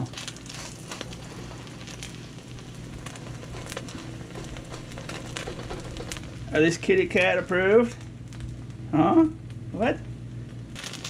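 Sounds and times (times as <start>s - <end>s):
patty sizzling in hot oil: 0.0s - 8.5s, 10.8s - 11.0s.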